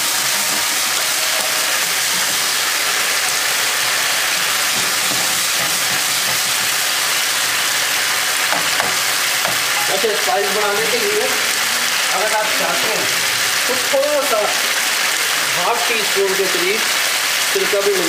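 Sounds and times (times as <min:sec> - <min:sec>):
food sizzling in a frying pan: 0:00.0 - 0:18.0
spatula stirring: 0:01.8 - 0:10.3.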